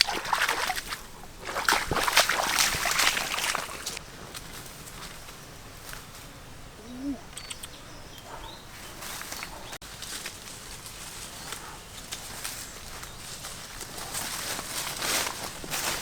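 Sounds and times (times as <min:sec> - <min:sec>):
faint animal calls: 0:06.7 - 0:08.6.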